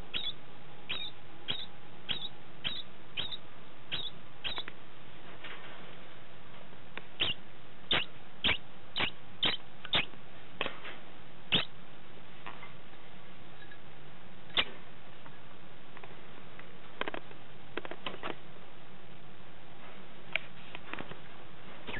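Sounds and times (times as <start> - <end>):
degu squeaking calls: 0.1 - 4.7, 7.2 - 10.1, 11.5 - 11.7, 14.5 - 14.7.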